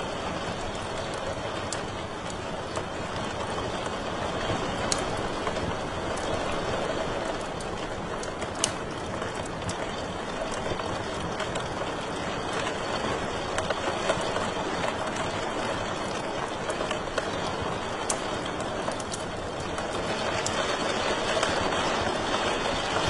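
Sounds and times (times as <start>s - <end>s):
wood fire hissing: 0.0s - 23.0s
fire pops and snaps: 0.1s - 23.0s.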